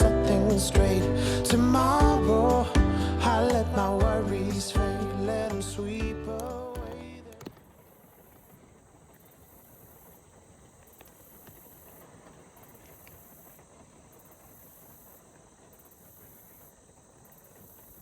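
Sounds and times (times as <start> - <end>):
pulsing high hiss: 0.0 - 6.8
soft ticks: 10.9 - 11.7.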